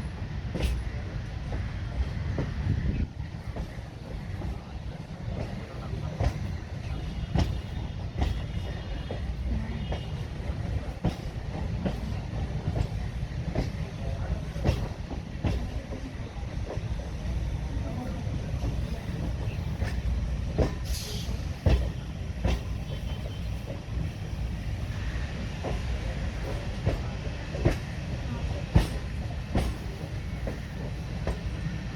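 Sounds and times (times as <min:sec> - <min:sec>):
train rumble: 0:00.0 - 0:31.9
wheels clacking over rail joints: 0:25.4 - 0:31.7.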